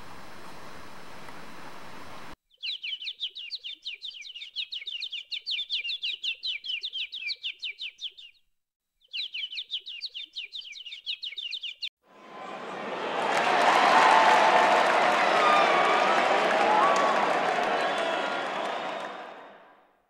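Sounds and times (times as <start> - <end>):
bird chirping rapidly: 2.5 - 8.4, 9.0 - 11.9.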